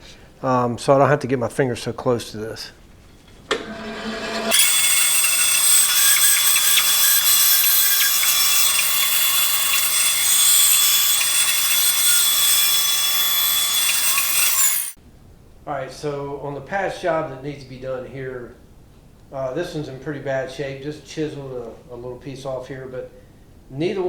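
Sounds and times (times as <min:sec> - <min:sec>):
power saw cutting wood: 0:03.5 - 0:15.0.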